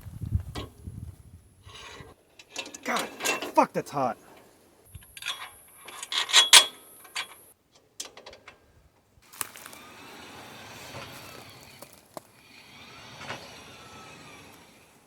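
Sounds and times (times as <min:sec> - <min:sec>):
metal tools clinking and knocking: 0:01.7 - 0:03.7, 0:05.0 - 0:08.5.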